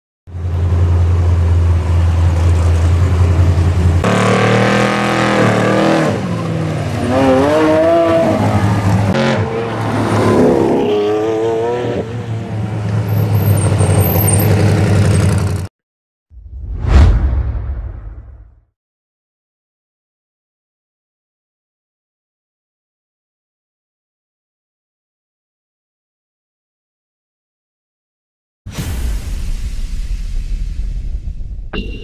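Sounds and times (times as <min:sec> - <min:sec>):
engines idling: 0:00.3 - 0:04.0
engines revving and driving by: 0:00.3 - 0:15.7.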